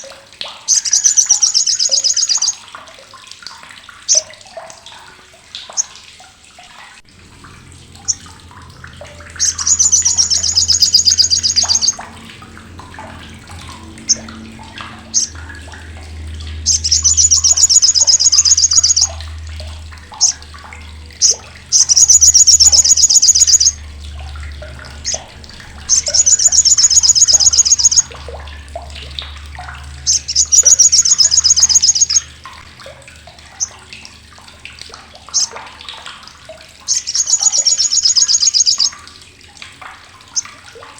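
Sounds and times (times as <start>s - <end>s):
bird harsh rapid chattering: 9.4s - 12.0s, 16.7s - 19.2s, 21.2s - 23.8s, 25.9s - 28.1s, 30.1s - 32.2s.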